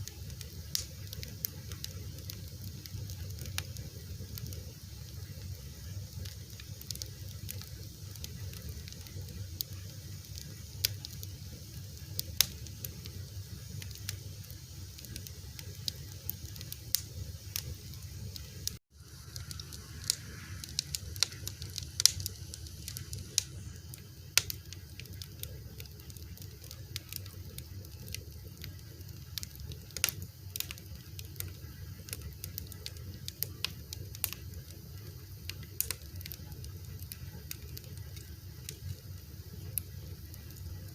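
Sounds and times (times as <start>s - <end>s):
fire crackling and popping: 0.0s - 40.9s
steady low rumble: 7.8s - 24.5s.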